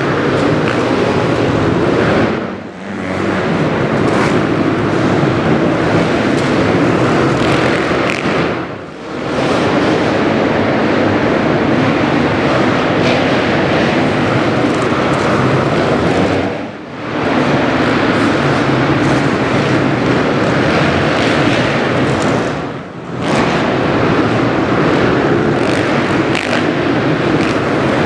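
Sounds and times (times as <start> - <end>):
motocross bike engine: 0.0 - 28.0.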